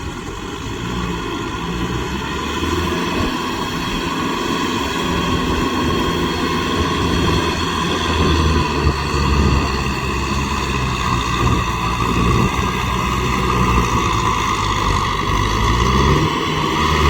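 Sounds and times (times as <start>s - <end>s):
high steady whine: 0.0s - 17.0s
tractor diesel engine drone: 0.0s - 17.0s.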